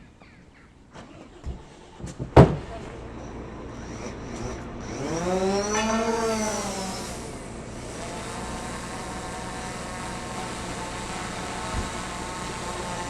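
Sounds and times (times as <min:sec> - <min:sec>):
car engine revving: 0:02.6 - 0:09.1.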